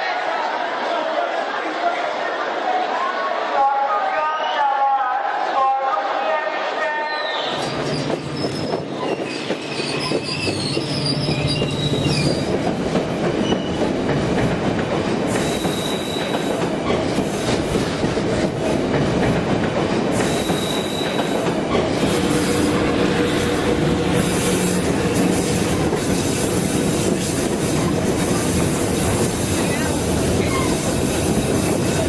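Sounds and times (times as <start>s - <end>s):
high wheel squeals: 7.2s - 12.5s
train rumbling on track: 7.6s - 32.0s.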